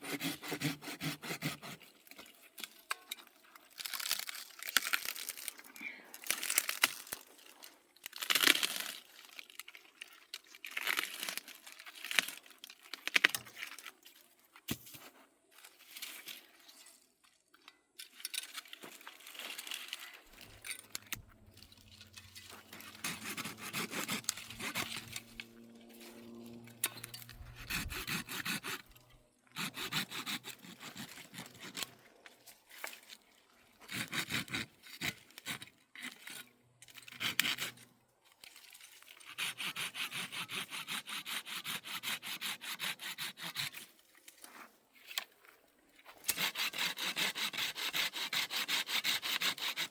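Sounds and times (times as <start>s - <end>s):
hand tool scraping wood: 0.0s - 2.4s, 19.5s - 32.0s, 33.8s - 37.8s, 39.2s - 45.2s, 46.1s - 49.9s.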